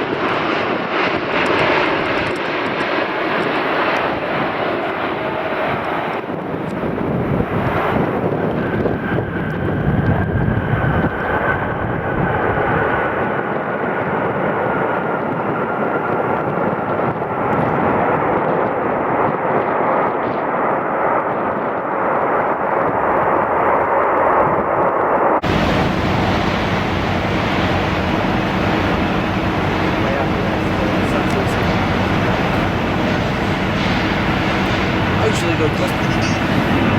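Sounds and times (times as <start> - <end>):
jet airliner passing low: 0.0 - 36.9
steady noise: 25.4 - 36.9.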